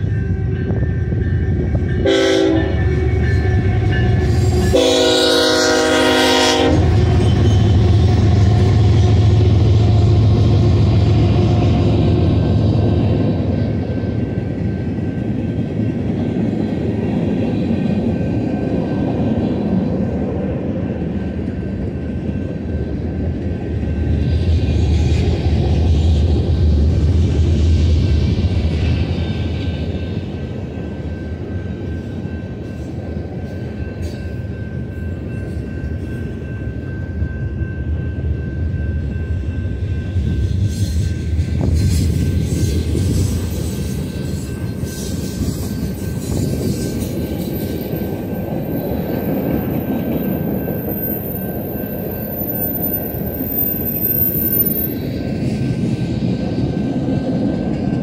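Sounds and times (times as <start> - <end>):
diesel locomotive rumble: 0.0 - 58.0
wheels rolling on rail: 0.0 - 58.0
locomotive horn blast: 1.6 - 8.7.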